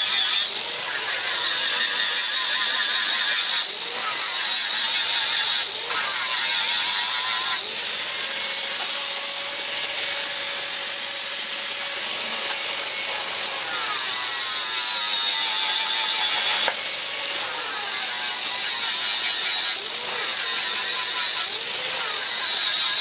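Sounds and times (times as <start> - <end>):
angle grinder grinding steel: 0.0 - 23.0.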